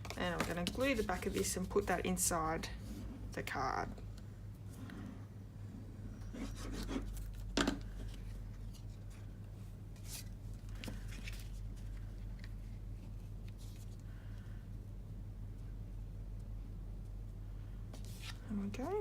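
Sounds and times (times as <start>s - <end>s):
cardstock rustling: 0.0s - 2.2s
low steady hum: 0.0s - 19.0s.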